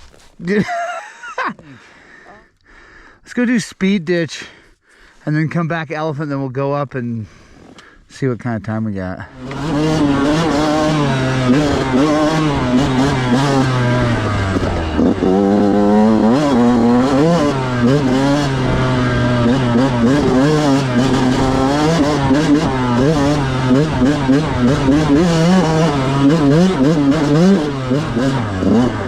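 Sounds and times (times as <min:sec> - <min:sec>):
dirt bike engine revving: 0:09.3 - 0:29.0.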